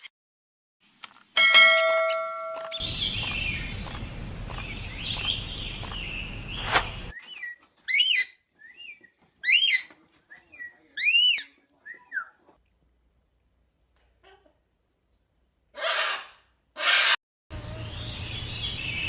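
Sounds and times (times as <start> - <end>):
faint bird chirping: 2.6 - 12.4
loud whistled bird calls: 2.7 - 12.4.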